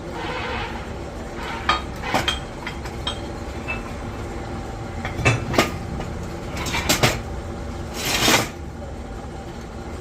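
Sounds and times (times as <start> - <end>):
steady low hum: 0.0 - 10.0
metallic clanks of steel parts: 0.2 - 4.0, 5.0 - 7.3.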